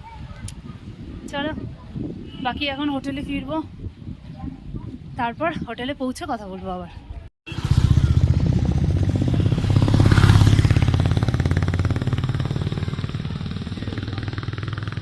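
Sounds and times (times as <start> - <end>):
motorcycle engine running: 7.5 - 15.0.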